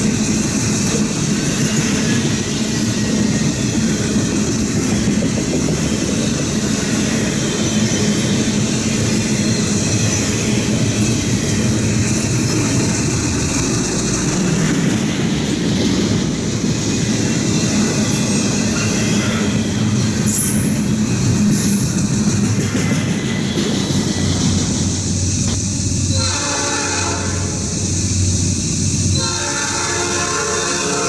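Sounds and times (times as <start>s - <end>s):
train wheels on rails: 0.0s - 31.0s.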